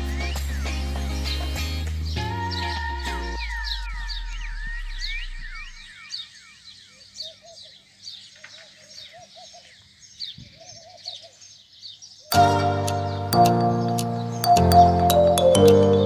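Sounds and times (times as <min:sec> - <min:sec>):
background music: 0:00.0 - 0:03.9, 0:12.3 - 0:16.0
birds chirping: 0:00.0 - 0:16.0
bird chattering call: 0:03.4 - 0:07.6.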